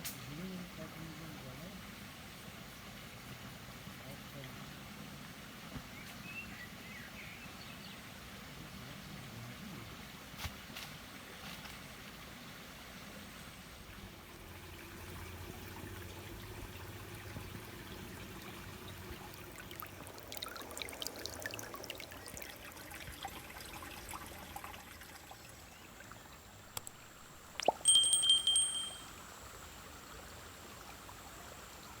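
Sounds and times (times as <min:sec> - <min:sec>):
water trickling: 0:13.5 - 0:32.0
high steady tone: 0:27.6 - 0:29.2.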